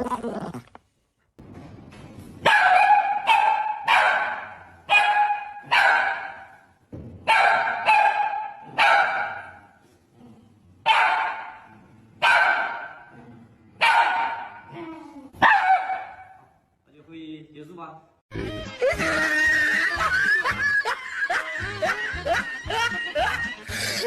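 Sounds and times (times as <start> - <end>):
dog barking with echo: 2.4 - 6.6, 7.2 - 9.7, 10.9 - 13.1, 13.8 - 14.7, 15.4 - 16.5.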